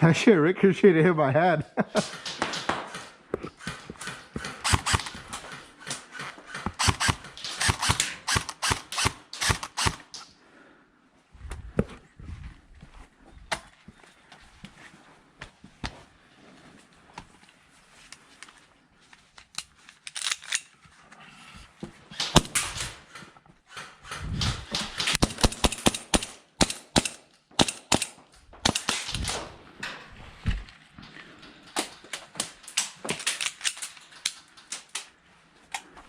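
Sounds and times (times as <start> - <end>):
airsoft guns firing: 2.0 - 10.2, 22.1 - 23.2, 24.1 - 29.6.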